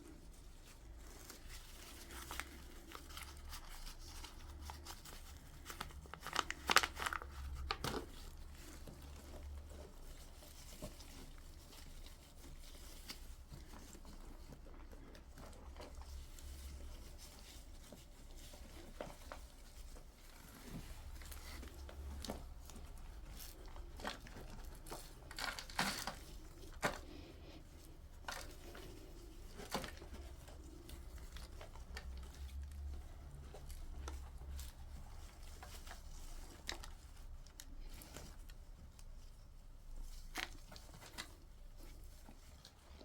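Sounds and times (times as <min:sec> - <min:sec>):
crinkling and rustling: 0:00.0 - 0:43.0.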